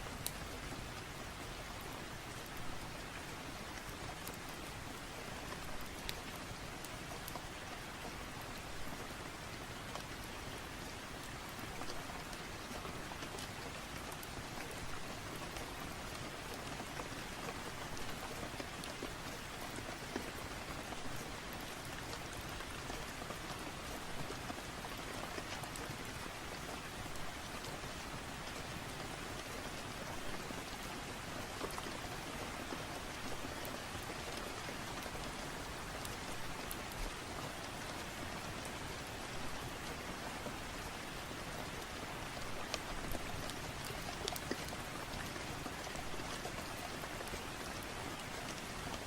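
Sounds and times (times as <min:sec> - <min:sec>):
rain drops ticking: 0:00.0 - 0:49.0
steady rain: 0:00.0 - 0:49.0.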